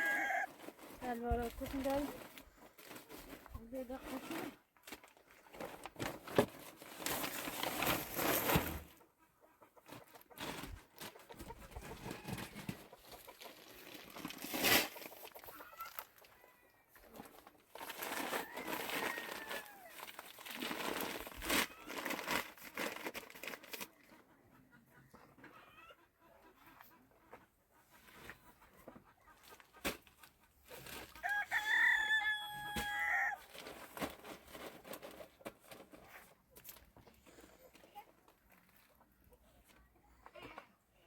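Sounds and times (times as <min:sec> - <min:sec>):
rustling noise: 0:00.3 - 0:09.0, 0:09.8 - 0:16.2, 0:32.8 - 0:37.2
chickens clucking: 0:08.8 - 0:19.8, 0:23.9 - 0:31.3.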